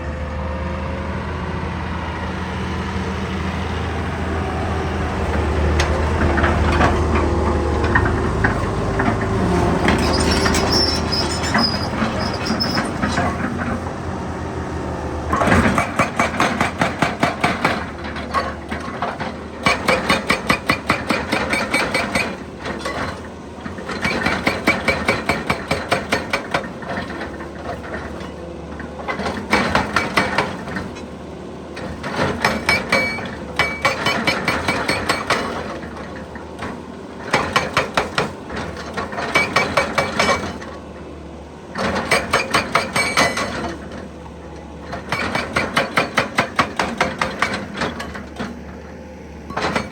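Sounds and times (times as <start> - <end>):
excavator engine running: 0.0 - 49.9
hydraulic breaker hammering rock: 15.3 - 41.0, 41.7 - 49.9.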